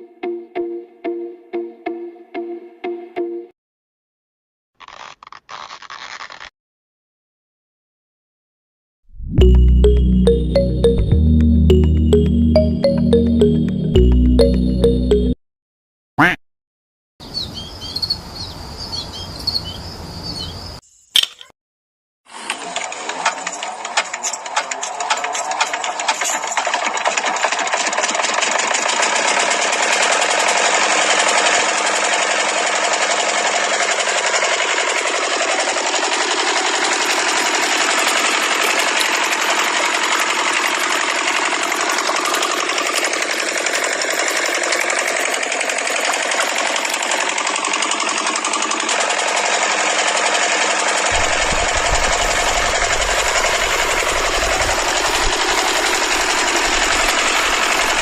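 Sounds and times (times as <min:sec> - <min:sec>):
small diesel engine knocking: 0:22.8 - 0:58.0.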